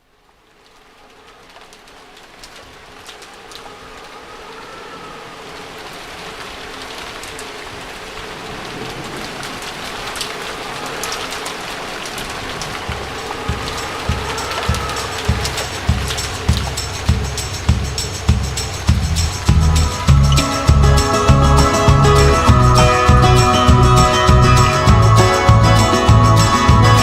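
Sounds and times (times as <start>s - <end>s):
sharp rain drop ticks: 0.0s - 27.0s
steady rain hiss: 0.0s - 27.0s
faint bird calls: 3.2s - 5.8s, 8.7s - 18.9s
low drum thumps: 12.7s - 27.0s.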